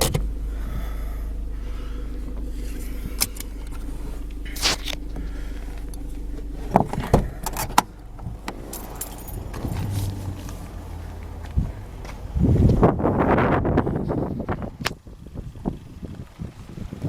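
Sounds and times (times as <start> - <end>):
car engine idling: 0.0 - 17.0
keys jangling: 8.5 - 10.3.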